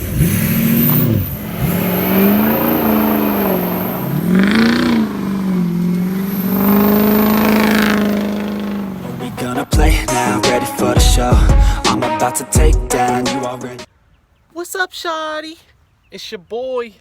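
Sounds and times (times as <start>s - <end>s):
pickup engine revving: 0.0s - 11.7s.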